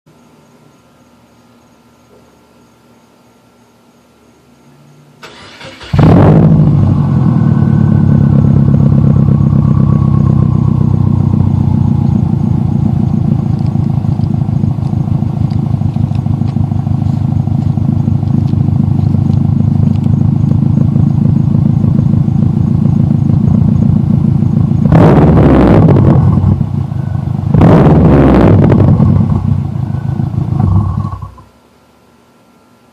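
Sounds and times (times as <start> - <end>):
car engine starting and idling: 5.2 - 31.5.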